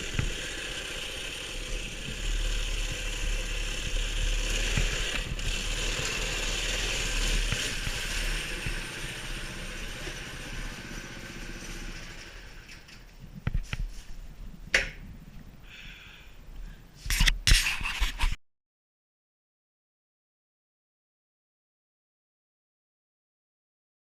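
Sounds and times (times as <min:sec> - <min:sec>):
mini bike engine running: 0:00.0 - 0:13.0.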